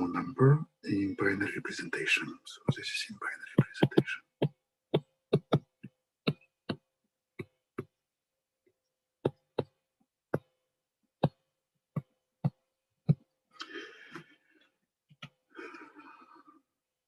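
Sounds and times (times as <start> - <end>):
pen tapping on a board: 3.6 - 8.0, 9.2 - 10.6, 11.2 - 13.3.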